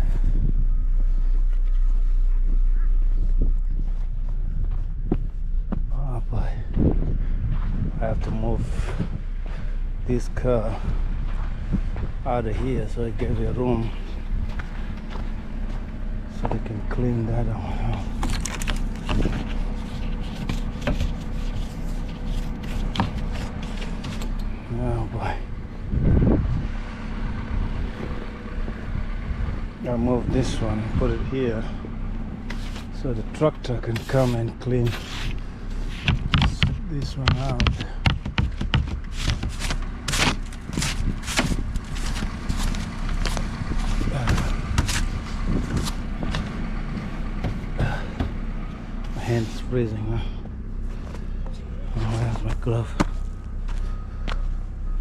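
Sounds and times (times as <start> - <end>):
car engine running: 0.0 - 55.0
low rumble: 0.0 - 55.0
footsteps crunching in snow: 1.0 - 17.2, 17.8 - 24.7, 32.4 - 33.1, 33.8 - 49.8.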